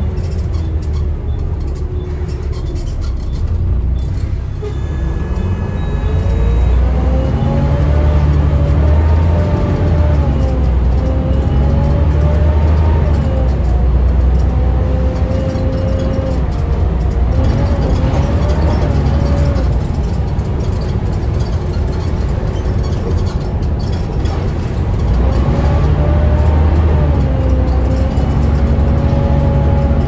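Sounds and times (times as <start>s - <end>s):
bus engine rumble: 0.0s - 30.0s
whine rising and falling: 4.6s - 10.5s.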